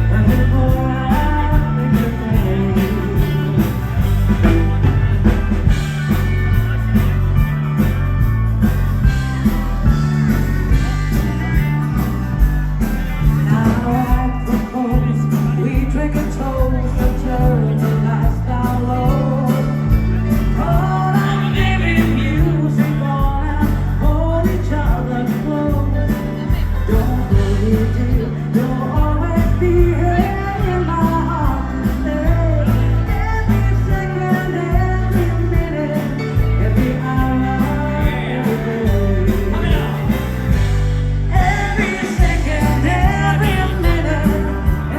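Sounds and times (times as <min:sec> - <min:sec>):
person singing: 0:00.0 - 0:04.4, 0:13.4 - 0:40.4, 0:41.3 - 0:44.9
bass guitar: 0:00.0 - 0:44.9
drums with steady beat: 0:00.0 - 0:44.9
electric guitar: 0:00.0 - 0:44.9.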